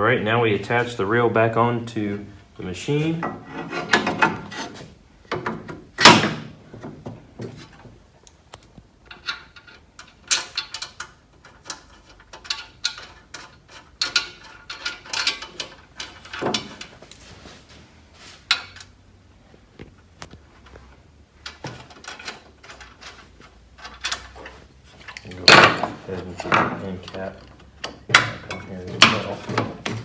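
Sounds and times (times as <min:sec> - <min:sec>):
metal parts clicking and knocking: 0:07.6 - 0:17.2, 0:21.4 - 0:30.0.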